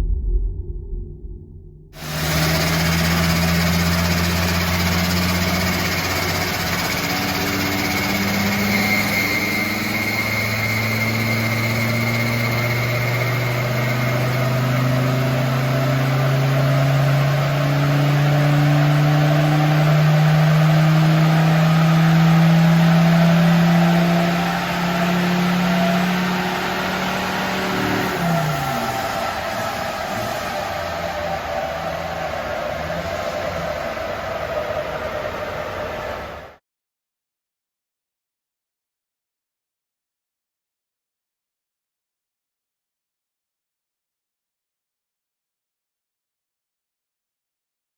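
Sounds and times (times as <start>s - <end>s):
diesel engine revving under load: 2.0s - 36.6s.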